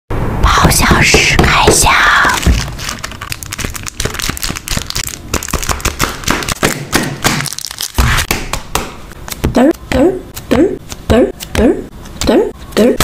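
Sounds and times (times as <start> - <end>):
paper and plastic crackling: 2.2 - 8.0.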